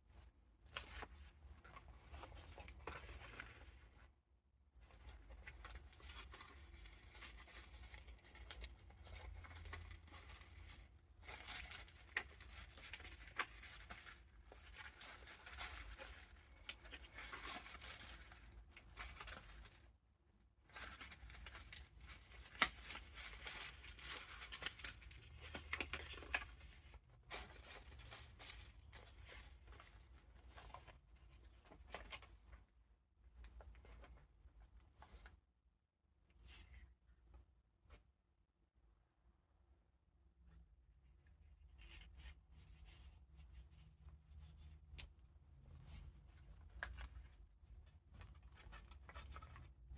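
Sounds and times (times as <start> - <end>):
paper pages rustling: 0.7 - 3.9, 5.0 - 19.8, 20.7 - 32.4.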